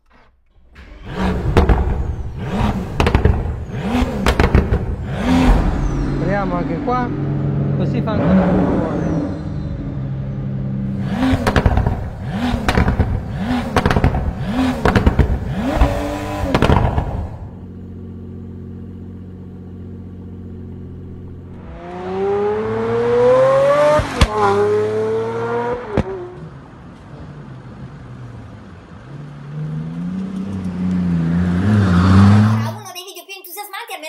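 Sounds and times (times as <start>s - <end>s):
car engine revving and idling: 0.0s - 32.8s
car accelerating hard: 0.8s - 32.8s.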